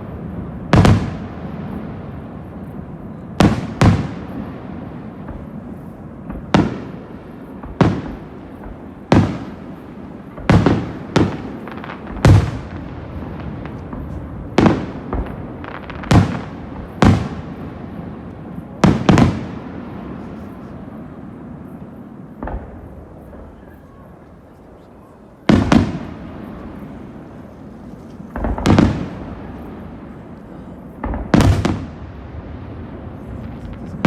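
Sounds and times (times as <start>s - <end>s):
firework crackle: 0.0s - 34.0s
firework shells bursting: 25.4s - 34.0s.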